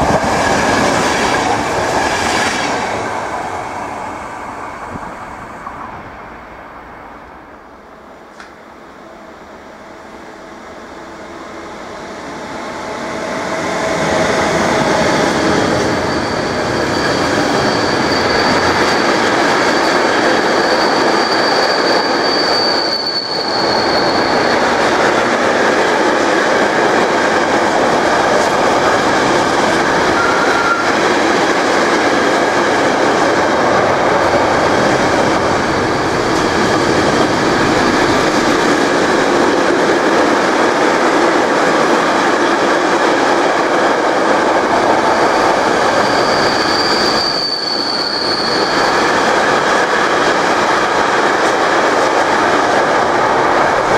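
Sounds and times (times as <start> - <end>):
freight train rumbling past: 0.0 - 53.9
high wheel squeal: 13.4 - 24.8, 29.8 - 31.1, 45.0 - 49.9.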